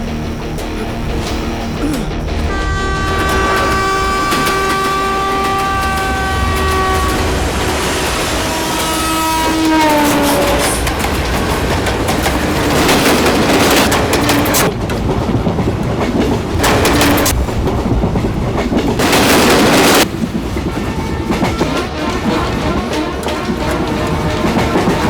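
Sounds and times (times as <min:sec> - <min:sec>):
train wheels clattering on rails: 0:00.0 - 0:25.0
train horn: 0:02.3 - 0:14.7, 0:16.6 - 0:17.4, 0:20.7 - 0:25.0.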